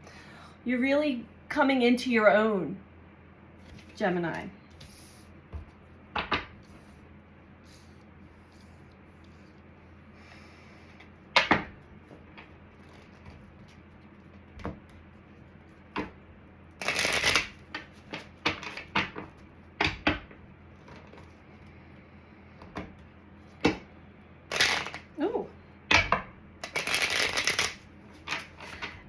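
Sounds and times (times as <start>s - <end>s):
cards being shuffled: 3.6s - 5.8s, 16.8s - 19.5s, 24.5s - 25.1s, 26.6s - 29.0s.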